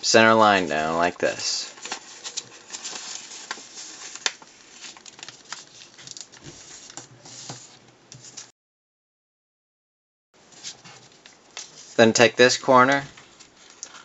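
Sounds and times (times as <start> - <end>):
paper folding and crinkling: 1.2 - 8.5, 10.6 - 12.0, 12.9 - 14.0
crisp paper clicks: 1.8 - 7.1.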